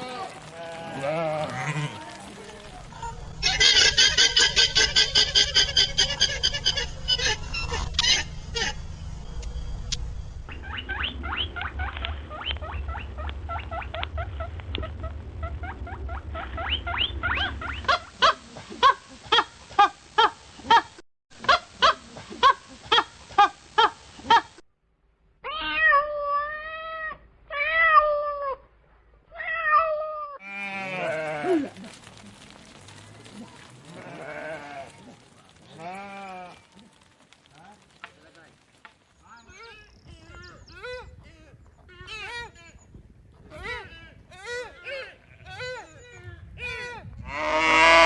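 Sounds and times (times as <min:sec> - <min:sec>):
drawn-out pitched animal calls: 0:00.0 - 0:19.7, 0:39.2 - 0:48.0
squeaky animal calls: 0:02.8 - 0:09.2, 0:10.5 - 0:14.0.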